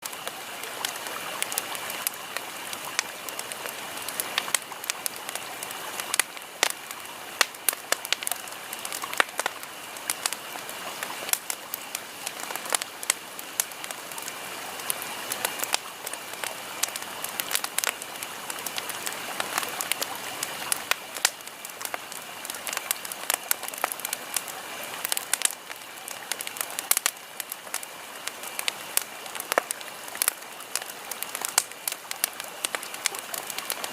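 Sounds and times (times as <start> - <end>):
fire hissing: 0.0 - 33.9
wood crackling and popping: 0.0 - 33.9.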